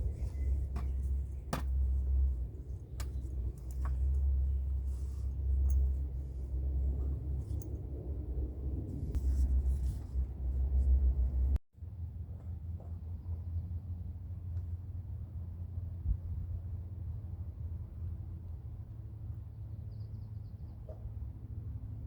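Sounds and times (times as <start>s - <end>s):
wind buffeting microphone: 0.0s - 4.8s
equipment being handled: 0.0s - 7.9s.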